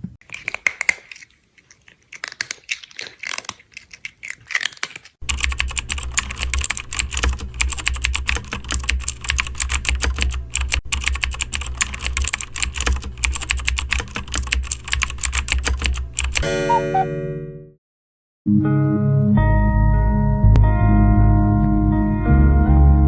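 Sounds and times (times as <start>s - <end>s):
computer keyboard typing: 4.5s - 17.1s.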